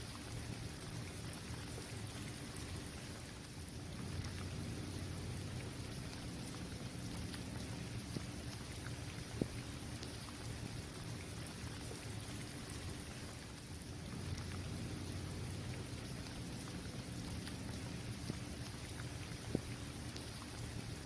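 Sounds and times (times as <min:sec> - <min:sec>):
steady rain falling: 0:00.0 - 0:21.0
raindrop taps: 0:17.3 - 0:20.5.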